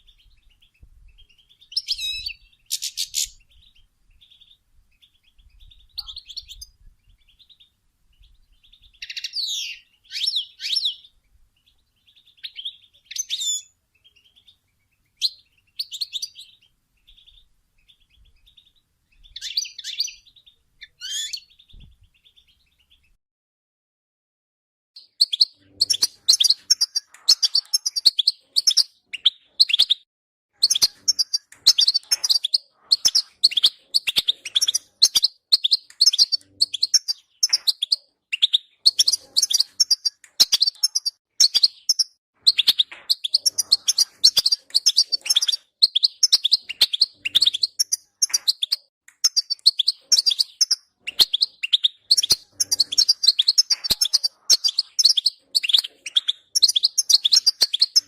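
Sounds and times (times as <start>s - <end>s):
goldfinch twittering: 30.6s - 58.0s.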